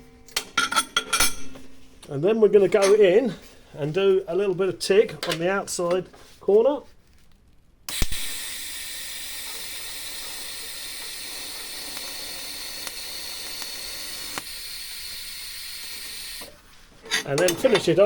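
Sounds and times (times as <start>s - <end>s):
welding arc hissing: 7.9s - 16.6s.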